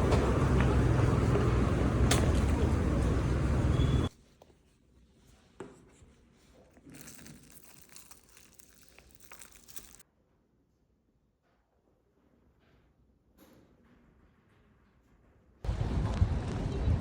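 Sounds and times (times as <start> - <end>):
crinkling and rustling: 4.2 - 10.0.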